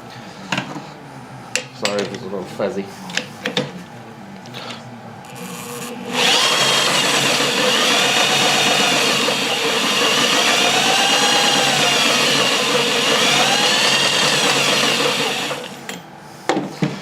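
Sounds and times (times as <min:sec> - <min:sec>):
power tool motor whining: 0:05.3 - 0:15.9.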